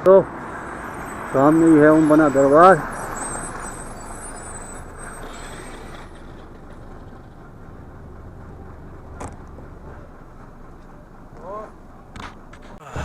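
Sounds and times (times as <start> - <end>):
road hiss: 0.0 - 13.0
low engine drone: 4.3 - 13.0.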